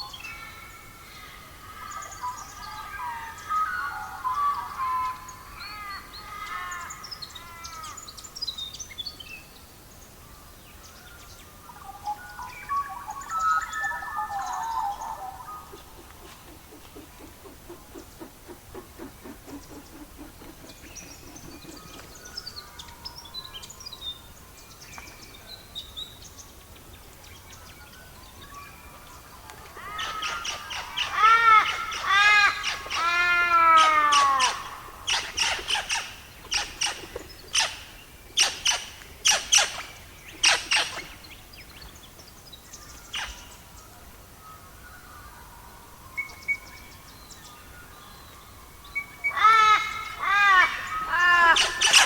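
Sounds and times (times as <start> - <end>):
faint bird chirps: 10.2 - 33.0
harsh falling bird calls: 13.2 - 23.7, 48.9 - 52.0.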